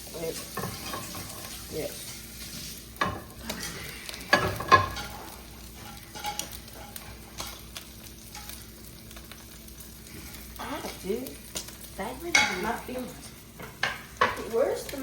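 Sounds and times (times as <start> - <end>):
batter sizzling in hot oil: 0.0 - 15.0
utensil knocking on pan: 12.3 - 12.7.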